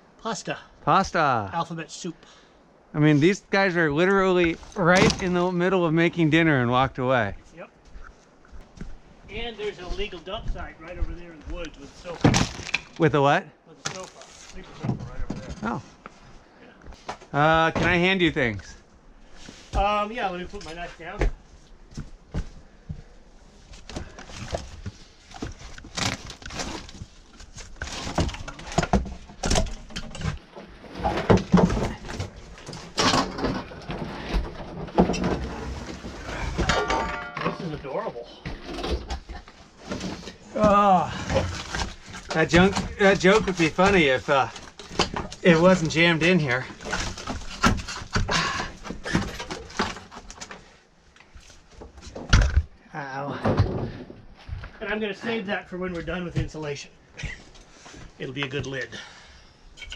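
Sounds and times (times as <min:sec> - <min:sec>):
objects knocking and clunking: 0:04.4 - 0:05.5, 0:14.7 - 0:16.1, 0:23.8 - 0:50.7, 0:51.8 - 0:54.8
rustling of objects: 0:13.7 - 0:52.8.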